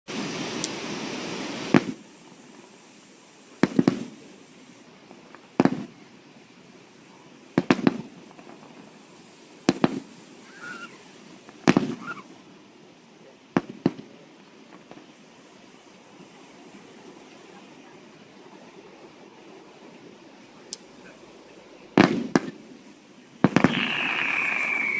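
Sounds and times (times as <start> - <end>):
fireworks exploding: 0.1 - 6.1, 7.5 - 12.4, 13.5 - 15.2, 21.9 - 24.9
steady rushing noise: 18.6 - 24.9.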